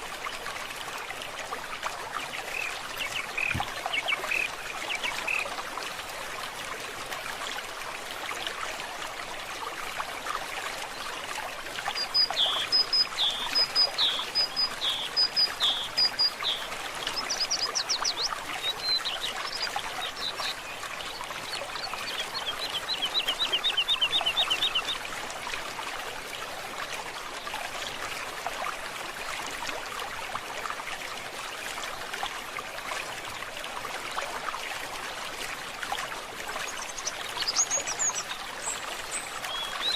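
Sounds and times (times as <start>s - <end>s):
stream trickling: 0.0s - 39.9s
bird singing: 12.0s - 20.6s.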